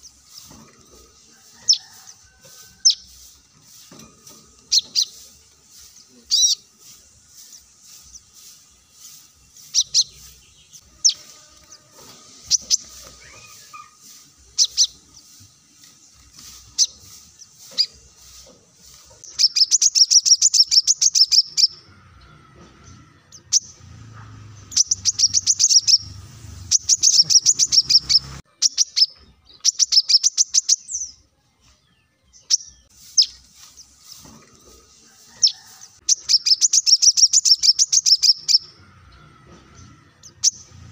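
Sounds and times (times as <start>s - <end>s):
bird sharp high chips: 2.8s - 11.5s, 12.4s - 21.8s, 24.8s - 30.9s
bird rapid high twittering: 4.7s - 18.4s, 19.2s - 21.8s, 24.6s - 31.1s, 32.4s - 34.0s, 35.4s - 38.7s.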